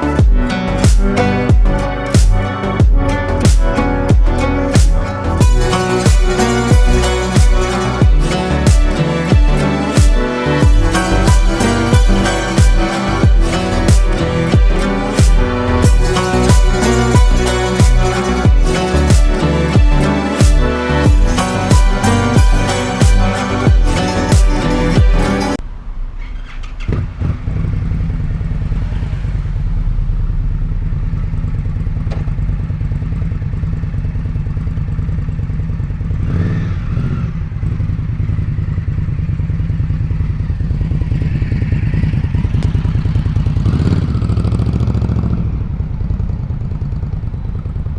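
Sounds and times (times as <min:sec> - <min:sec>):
motorcycle engine idling: 0:29.3 - 0:47.9.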